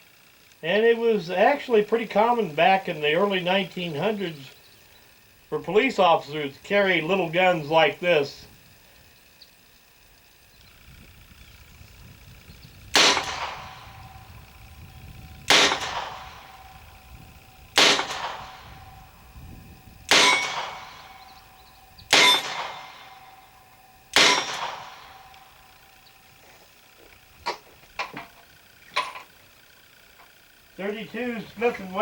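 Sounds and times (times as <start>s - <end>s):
revolver shots: 12.9s - 14.5s, 15.1s - 17.1s, 17.7s - 19.1s, 20.1s - 26.2s.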